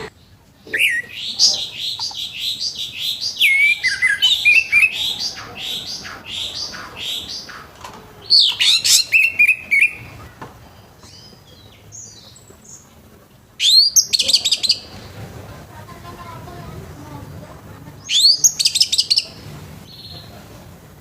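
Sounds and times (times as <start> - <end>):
thrush singing whistled phrases: 3.0 - 5.8, 18.0 - 19.3.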